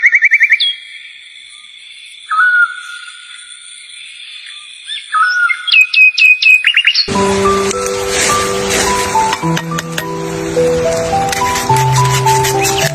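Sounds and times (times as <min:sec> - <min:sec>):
birds singing: 0:00.0 - 0:07.1, 0:11.7 - 0:12.9.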